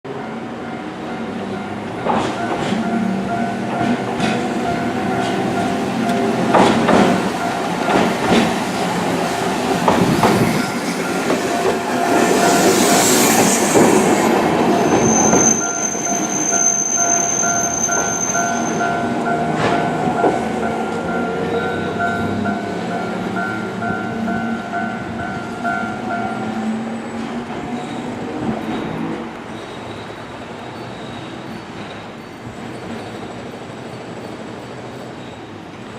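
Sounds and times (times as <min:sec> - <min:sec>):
tram running hum: 0:00.1 - 0:35.9
high wheel squeal: 0:02.4 - 0:35.7
tram wheels knocking over rail joints: 0:03.7 - 0:15.5.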